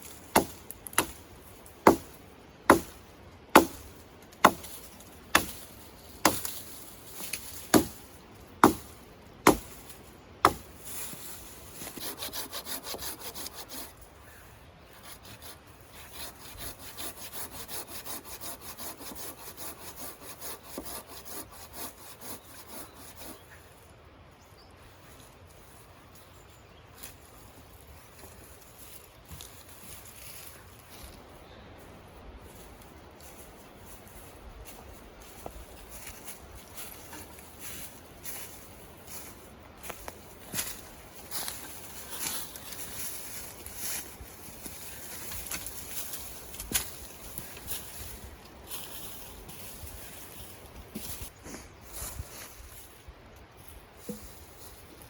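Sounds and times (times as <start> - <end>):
sharp blows on wood: 1.8 - 4.7, 8.6 - 9.8, 11.8 - 13.9
hand saw cutting wood: 11.8 - 13.9, 14.9 - 23.4.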